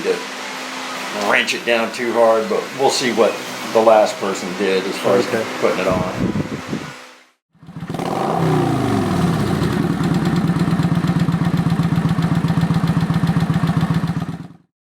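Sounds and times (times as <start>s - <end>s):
motorcycle engine idling: 7.6s - 14.7s.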